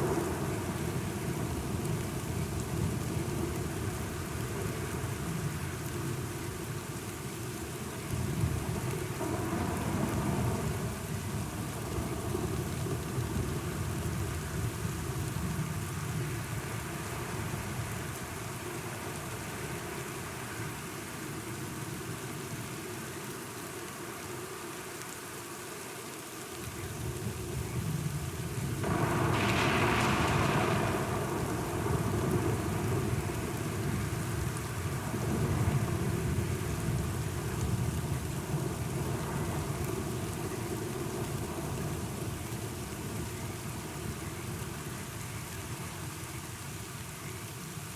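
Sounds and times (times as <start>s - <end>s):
steady rain: 0.0s - 47.9s
rolling thunder: 28.6s - 44.1s.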